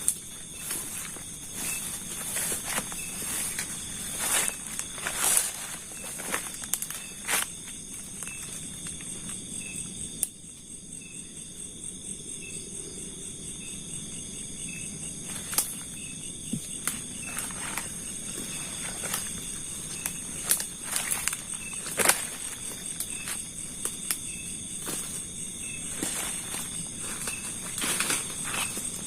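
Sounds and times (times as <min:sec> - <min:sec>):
footsteps in dry undergrowth: 0:00.0 - 0:09.4, 0:15.2 - 0:29.0
crickets and insects trilling: 0:00.0 - 0:29.0.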